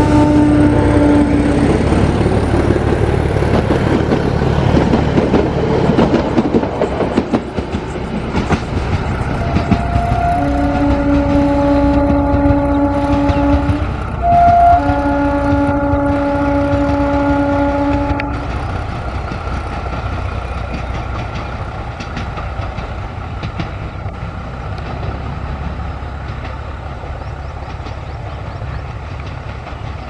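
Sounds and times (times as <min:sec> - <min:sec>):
train horn chord: 0:00.0 - 0:01.7, 0:09.4 - 0:18.5
train rumble: 0:00.0 - 0:30.0
wheel clatter on track: 0:01.6 - 0:30.0.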